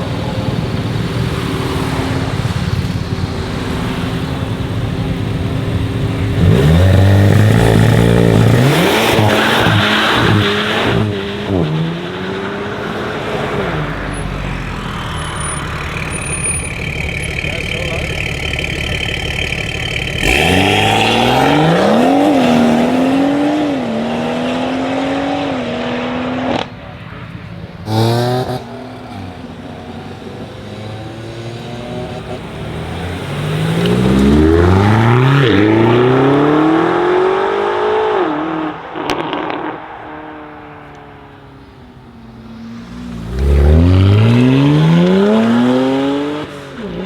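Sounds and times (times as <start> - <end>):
car engines accelerating hard: 0.0 - 47.0
engine blip: 13.7 - 22.2.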